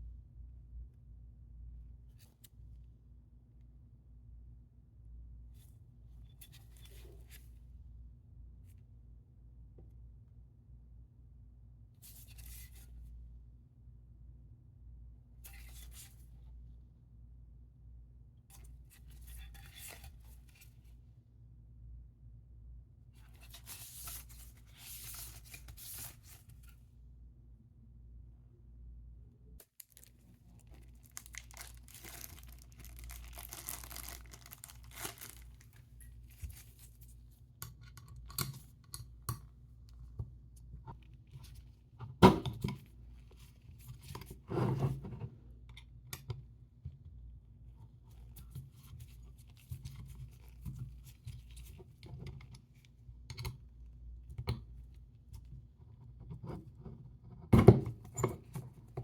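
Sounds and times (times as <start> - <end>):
rustling and scraping: 23.2 - 26.8, 29.8 - 37.5.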